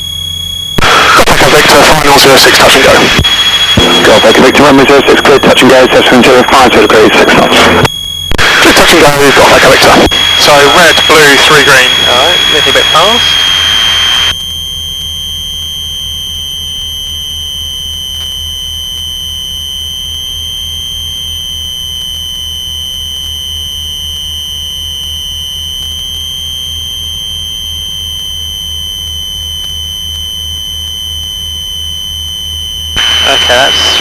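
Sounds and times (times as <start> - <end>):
high-pitched whine: 0.0 - 34.0.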